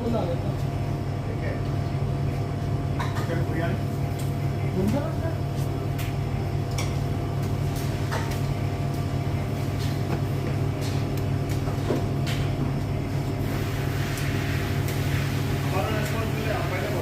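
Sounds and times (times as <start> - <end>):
kitchen machinery humming: 0.0 - 17.0.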